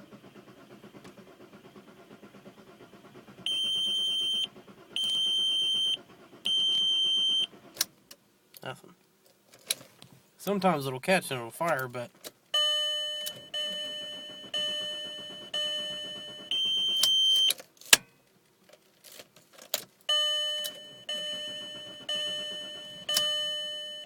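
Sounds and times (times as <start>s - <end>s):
dashboard warning chime: 3.5s - 7.6s, 12.6s - 17.6s, 20.1s - 24.0s.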